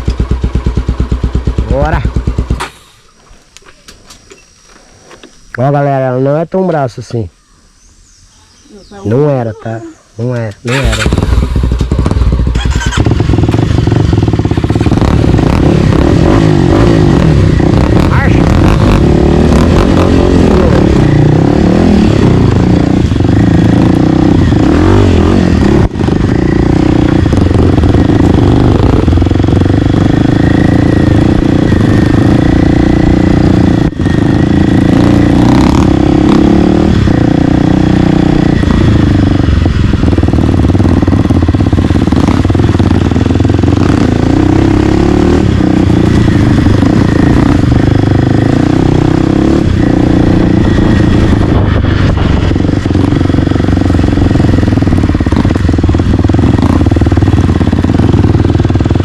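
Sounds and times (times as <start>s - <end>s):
dirt bike engine running: 0.0s - 3.5s, 10.6s - 59.0s.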